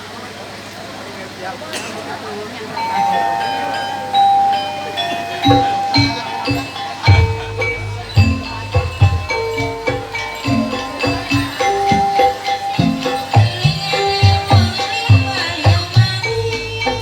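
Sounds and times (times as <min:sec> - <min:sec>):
gamelan ensemble playing: 0:01.8 - 0:17.0
low drum strikes: 0:05.5 - 0:16.1.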